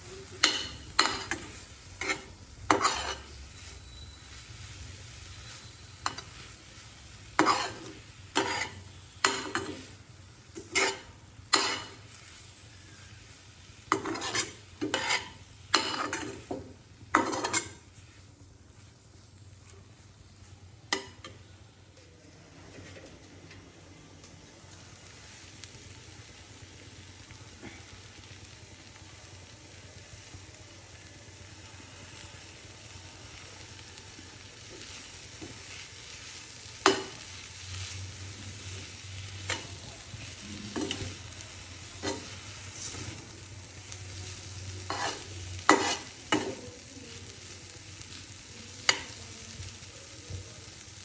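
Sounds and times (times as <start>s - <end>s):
spatula scraping a cooking pan: 0.3s - 18.2s, 34.7s - 43.4s, 44.6s - 46.7s.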